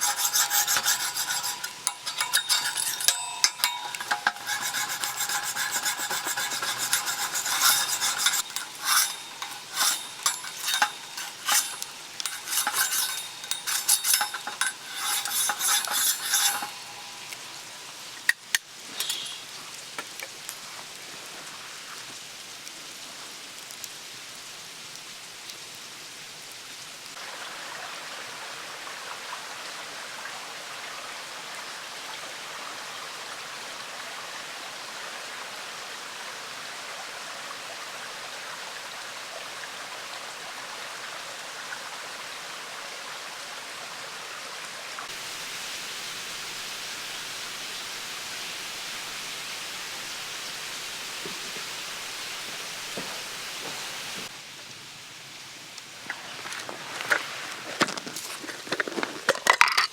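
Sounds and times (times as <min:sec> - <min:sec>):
metal spatulas scraping griddle: 0:00.0 - 0:18.0, 0:18.9 - 0:19.4
food sizzling on griddle: 0:00.0 - 0:21.6, 0:45.1 - 0:54.3.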